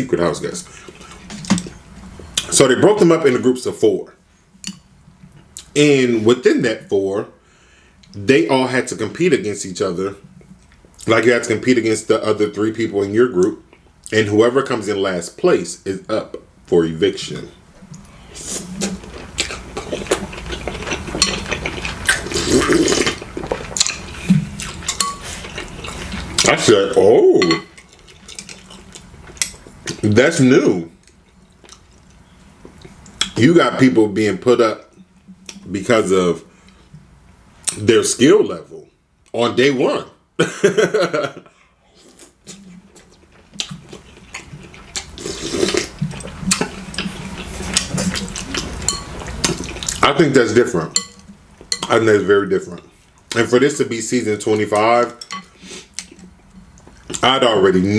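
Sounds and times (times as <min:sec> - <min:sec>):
wet slurping of broth: 0:21.6 - 0:23.3, 0:45.2 - 0:46.0.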